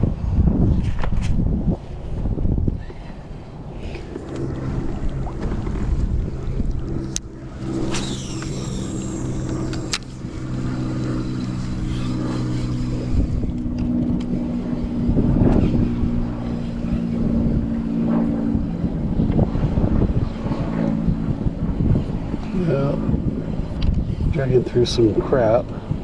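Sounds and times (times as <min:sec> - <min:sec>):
falling high sweep: 0:02.7 - 0:13.5
motor humming: 0:02.7 - 0:24.3.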